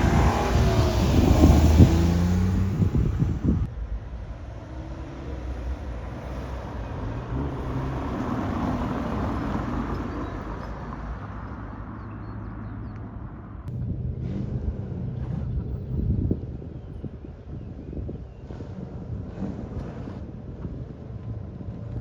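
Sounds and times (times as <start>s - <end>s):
car driving past: 0.0s - 12.7s
steady engine rumble: 0.0s - 22.0s.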